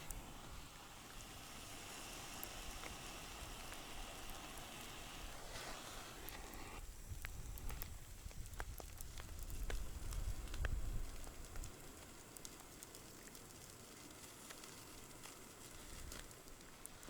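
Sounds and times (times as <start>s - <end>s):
burning wood popping: 0.0s - 17.0s
campfire crackling: 0.0s - 17.0s.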